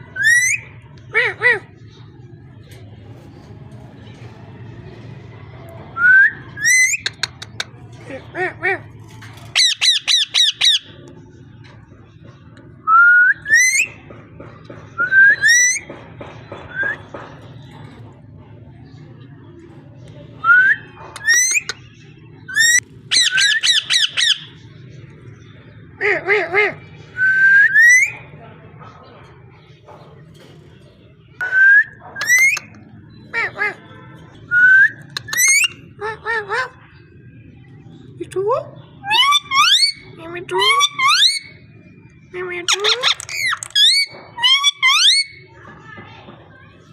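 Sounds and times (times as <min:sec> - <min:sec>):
parrot squawking: 0:09.6 - 0:10.9, 0:22.5 - 0:24.6, 0:32.1 - 0:33.8, 0:34.8 - 0:36.8, 0:39.0 - 0:41.6, 0:42.5 - 0:45.5.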